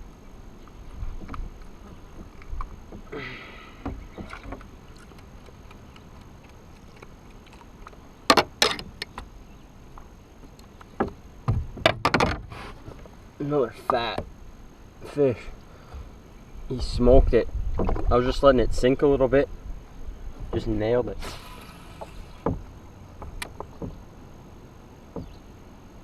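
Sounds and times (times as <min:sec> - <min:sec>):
low background hiss: 0:00.0 - 0:26.0
knocks and clatters on kayak: 0:00.6 - 0:03.1, 0:03.8 - 0:13.1, 0:13.8 - 0:14.4, 0:17.6 - 0:18.3, 0:20.4 - 0:21.0, 0:21.9 - 0:24.1, 0:25.1 - 0:25.4.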